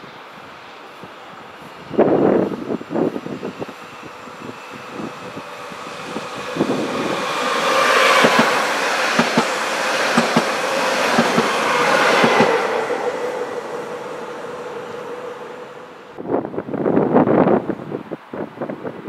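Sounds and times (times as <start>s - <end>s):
train rumble: 0.0s - 17.8s
train wheels clicking on rails: 2.0s - 14.0s.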